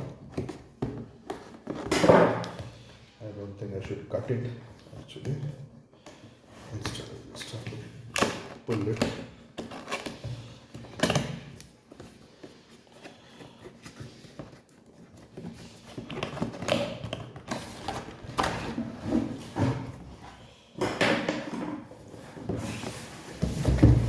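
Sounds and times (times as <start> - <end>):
cardboard flaps rustling: 22.0 - 24.0.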